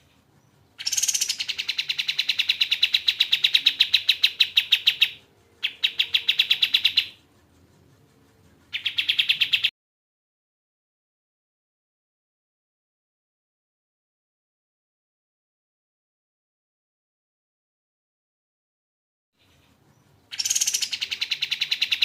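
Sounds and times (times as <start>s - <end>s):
bird singing fast trill: 0.4s - 7.2s, 8.7s - 9.7s, 19.5s - 22.0s.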